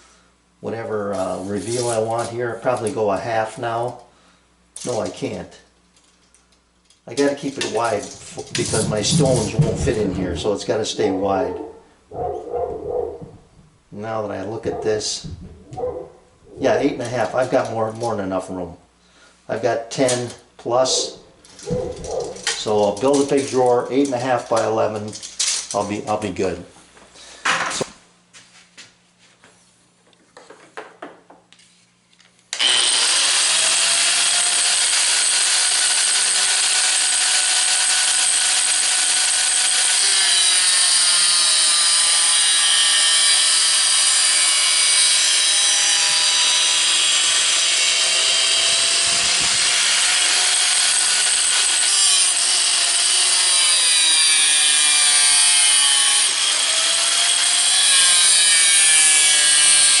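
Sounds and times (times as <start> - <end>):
power saw cutting metal: 7.3 - 10.0, 21.0 - 25.2, 32.6 - 60.0.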